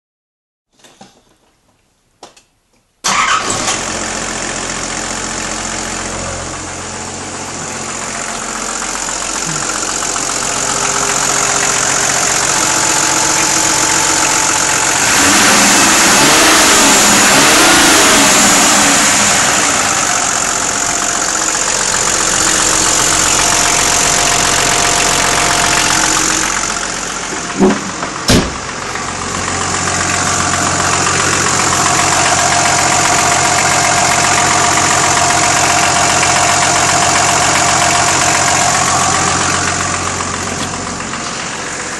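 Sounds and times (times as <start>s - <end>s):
car engine running and revving: 3.7s - 41.9s.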